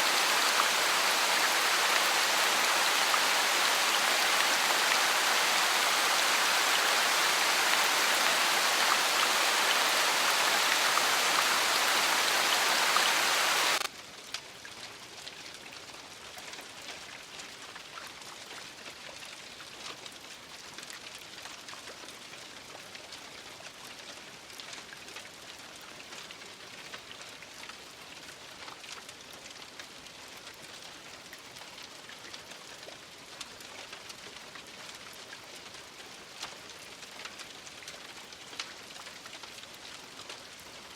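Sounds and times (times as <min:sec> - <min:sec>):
heavy rain: 0:00.0 - 0:13.9
raindrops ticking on a surface: 0:00.0 - 0:40.9.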